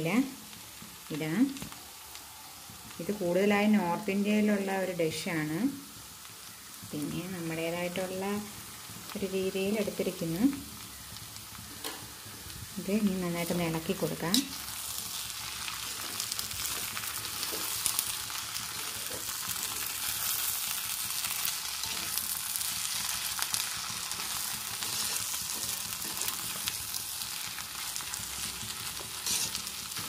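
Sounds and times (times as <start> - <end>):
potatoes sizzling in a pan: 0.0 - 30.0
spatula scraping a pan: 15.4 - 26.8, 28.0 - 30.0.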